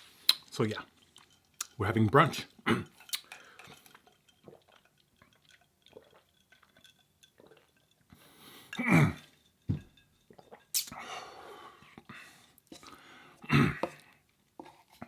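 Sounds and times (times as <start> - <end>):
wet chewing and mouth smacks: 0.2 - 1.8, 2.9 - 8.0, 10.3 - 11.0.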